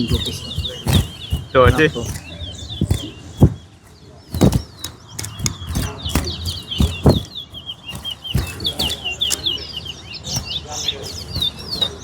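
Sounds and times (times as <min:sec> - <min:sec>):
sharp knocks: 0:00.0 - 0:09.6
finches chirping song: 0:00.0 - 0:12.0.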